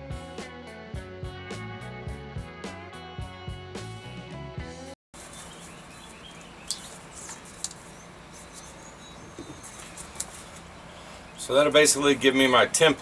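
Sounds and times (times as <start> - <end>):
background music: 0.0 - 4.9
birds chirping: 5.2 - 13.0.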